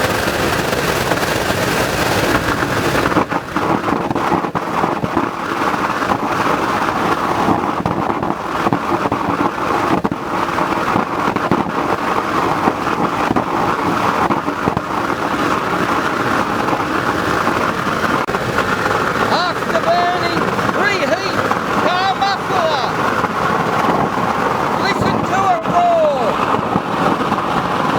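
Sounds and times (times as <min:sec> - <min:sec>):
burner flame rushing: 0:00.0 - 0:27.9
crackling pops: 0:00.0 - 0:27.9.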